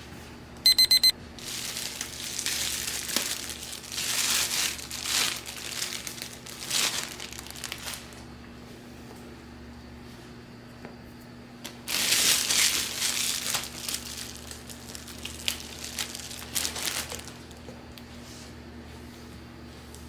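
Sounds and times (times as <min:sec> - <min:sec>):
packaging crinkling: 0:01.4 - 0:08.2, 0:11.9 - 0:17.5.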